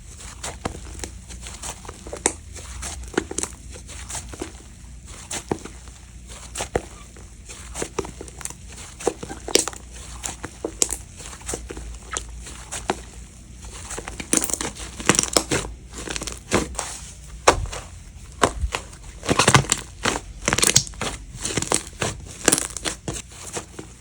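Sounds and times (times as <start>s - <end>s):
slime squeezed by hand crackling: 18.4s - 23.1s.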